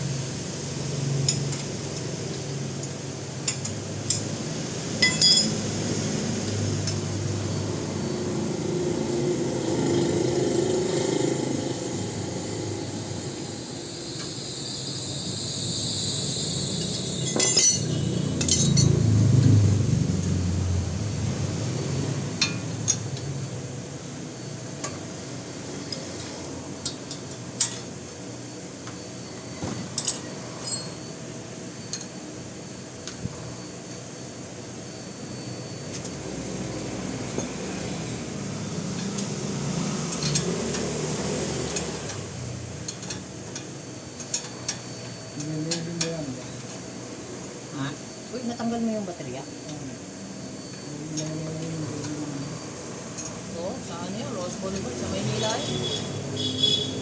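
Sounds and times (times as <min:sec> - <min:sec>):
steady background noise: 0:00.0 - 0:57.0
light metallic clinks and taps: 0:05.0 - 0:05.6.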